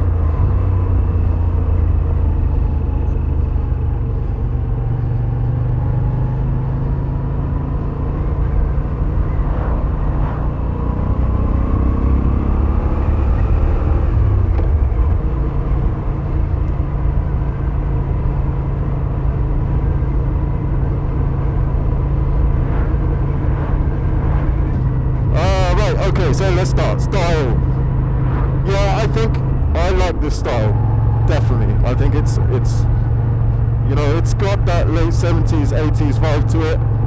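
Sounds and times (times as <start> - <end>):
motorcycle engine rumble: 19.5 - 37.0.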